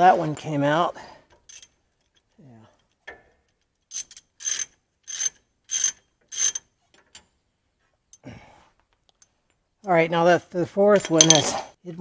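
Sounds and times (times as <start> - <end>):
ratchet wrench clicking: 3.9 - 6.6.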